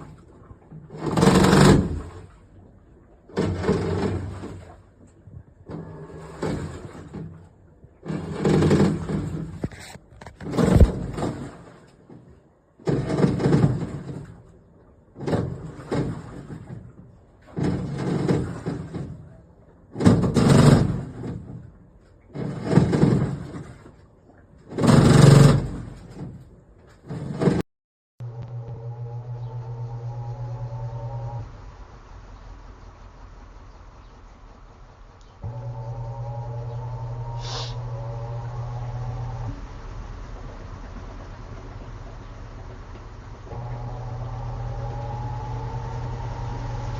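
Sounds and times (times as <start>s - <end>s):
washing machine water swishing: 0.0s - 27.6s, 35.4s - 46.9s.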